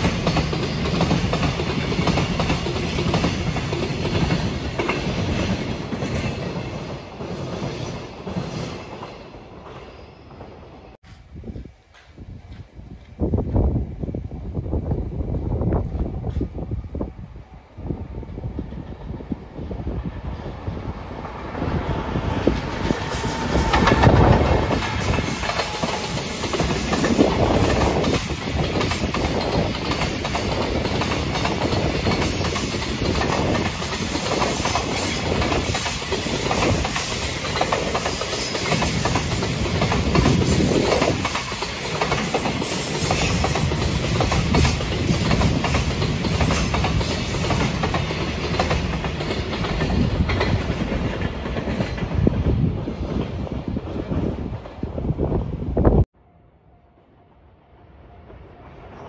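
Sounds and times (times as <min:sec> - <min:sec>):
electric locomotive passing: 0:00.0 - 0:59.0
wheels clacking over rail joints: 0:22.5 - 0:52.4.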